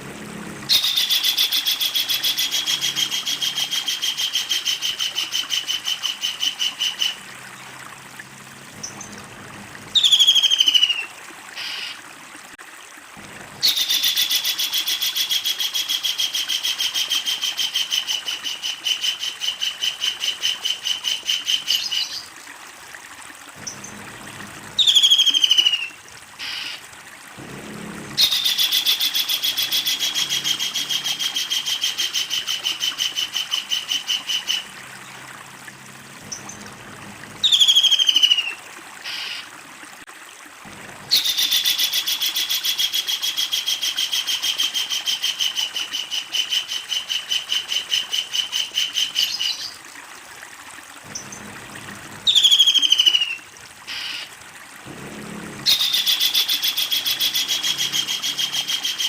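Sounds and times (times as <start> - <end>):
kingfisher rattling calls: 0.7 - 7.2, 28.2 - 34.7, 55.6 - 59.0.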